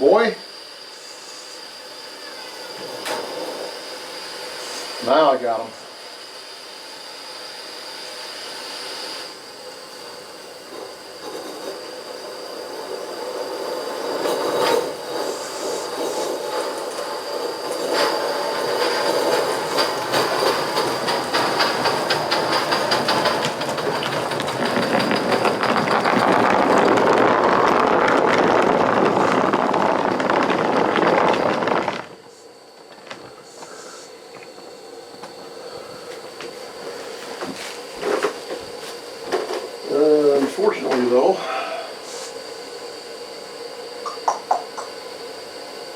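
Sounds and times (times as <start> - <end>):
steady steam hiss: 0.0 - 26.0, 27.0 - 44.2
wheels on rail: 10.7 - 33.7
steam locomotive exhaust beats: 13.8 - 42.4.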